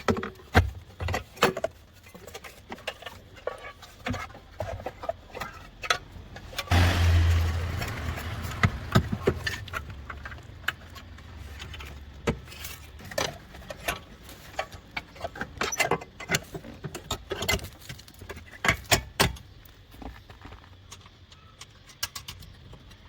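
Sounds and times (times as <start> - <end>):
low hum: 6.6 - 12.0.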